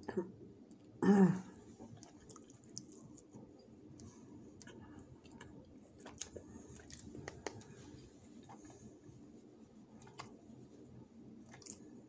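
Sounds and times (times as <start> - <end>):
person chewing: 1.8 - 7.8, 11.5 - 11.9.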